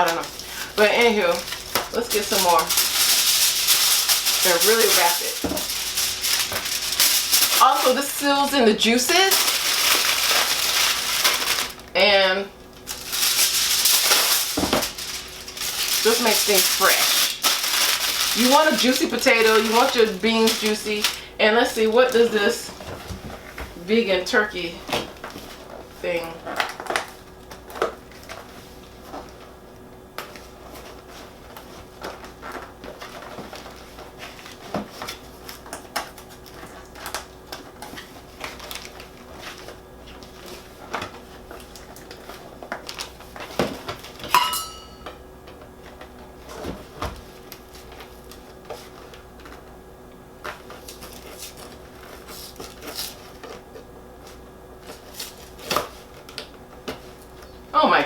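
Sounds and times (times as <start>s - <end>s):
packages and dishes clattering: 0.0s - 8.2s, 8.8s - 11.9s, 12.9s - 21.2s, 31.6s - 45.6s
faint steady hum: 0.0s - 58.0s
ringing metallic clink: 44.4s - 45.1s.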